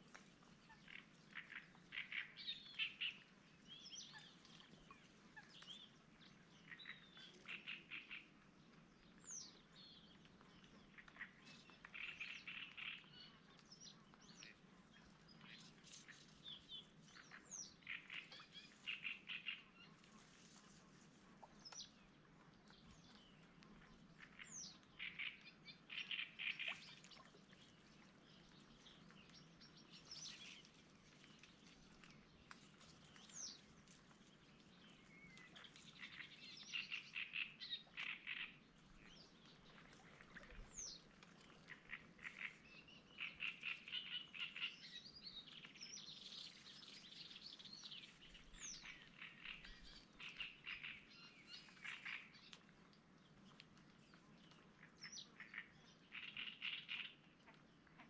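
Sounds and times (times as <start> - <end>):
small birds singing: 21.5 - 58.0.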